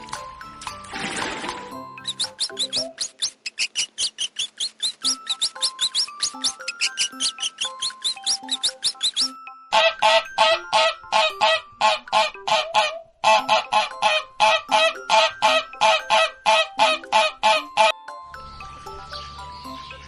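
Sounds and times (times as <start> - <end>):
farm fowl calling: 9.7 - 17.9.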